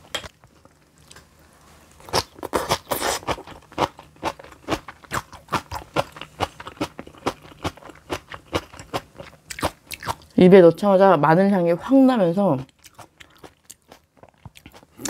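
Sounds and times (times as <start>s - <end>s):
crunchy chewing: 12.7s - 15.0s.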